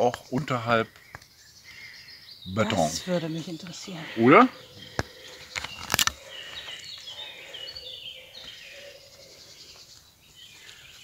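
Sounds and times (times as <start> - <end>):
faint woodland background: 0.0 - 11.0
songbird chirping: 0.0 - 11.0.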